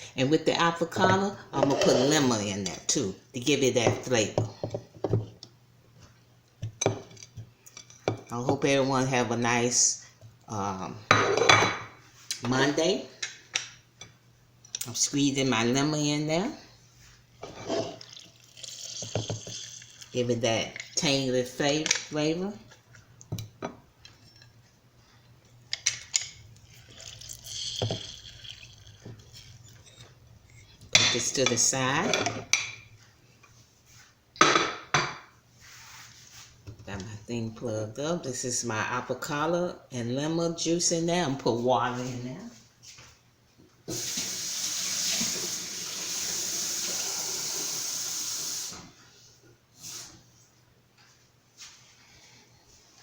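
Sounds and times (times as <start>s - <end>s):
tap water running into a container: 43.9s - 48.8s.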